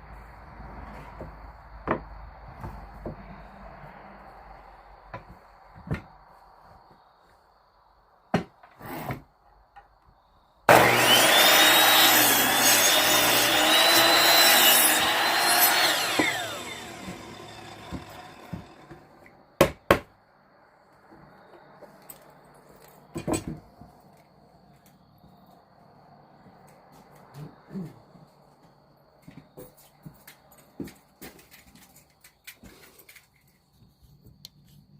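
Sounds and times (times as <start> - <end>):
electric power saw cutting wood: 10.7 - 19.1.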